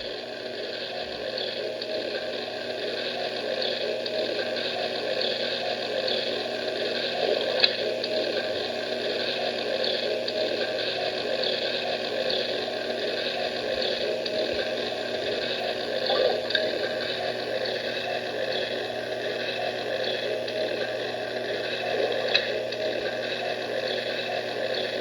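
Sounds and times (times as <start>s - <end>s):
aquarium water bubbling: 14.3s - 17.2s, 21.6s - 23.3s.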